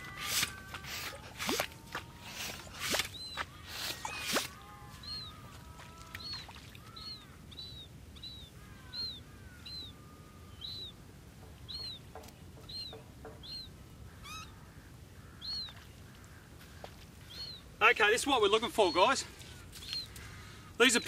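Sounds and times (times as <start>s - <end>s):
bird chirping: 2.9s - 5.4s, 6.1s - 14.6s, 17.2s - 17.7s, 18.5s - 20.2s
soft bird twittering: 6.1s - 11.0s, 11.6s - 14.6s, 17.2s - 17.7s, 18.6s - 21.0s.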